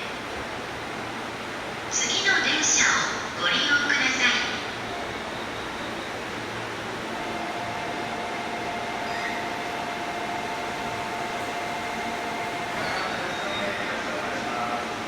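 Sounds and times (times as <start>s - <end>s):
electric train inverter whine: 0.0s - 15.0s
train running rumble: 4.3s - 15.0s.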